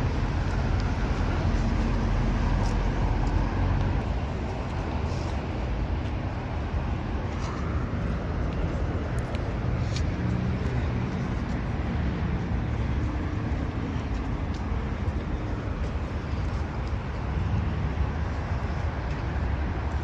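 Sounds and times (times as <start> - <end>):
car engines rumbling: 0.0 - 20.0
traffic noise: 0.0 - 20.0.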